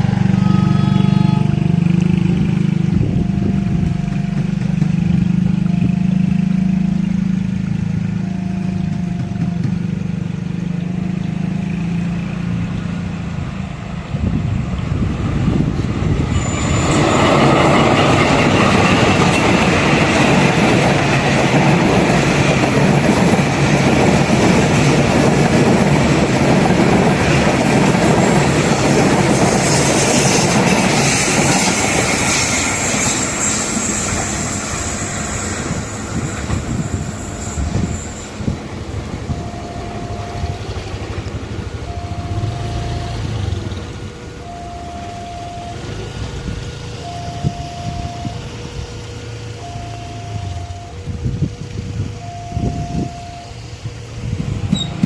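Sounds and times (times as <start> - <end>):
train wheels rumbling on rails: 0.0 - 55.0
two-note electronic warning tone: 0.2 - 12.8, 32.3 - 55.0.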